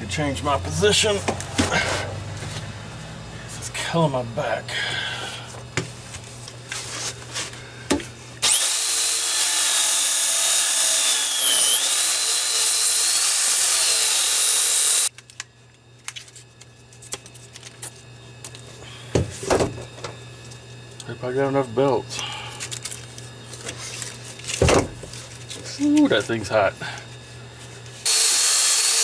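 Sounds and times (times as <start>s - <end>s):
belt sander whining: 8.4s - 15.1s, 28.1s - 29.0s.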